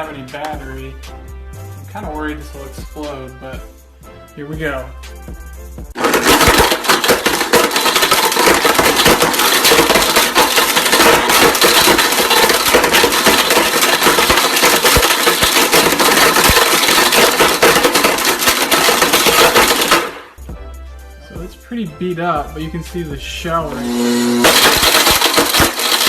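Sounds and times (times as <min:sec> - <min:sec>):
blender running: 0:06.0 - 0:20.0, 0:23.7 - 0:26.0
phone pieces clattering in jar: 0:06.0 - 0:20.2.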